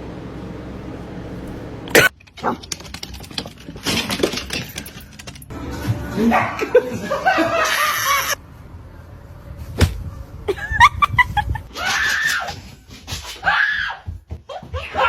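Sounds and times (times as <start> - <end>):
people laughing and shrieking: 6.1 - 8.4, 10.5 - 12.8.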